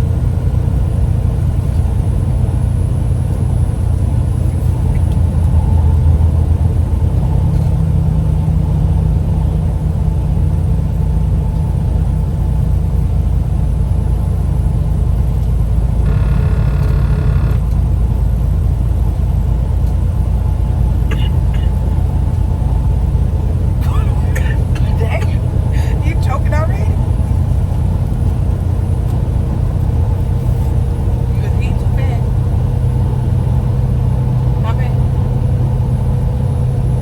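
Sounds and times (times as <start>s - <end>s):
car engine rumble: 0.0s - 37.0s.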